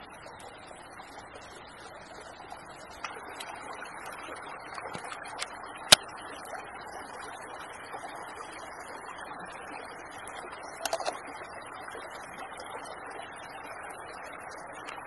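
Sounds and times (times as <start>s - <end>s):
creek water rushing: 10.3s - 11.6s.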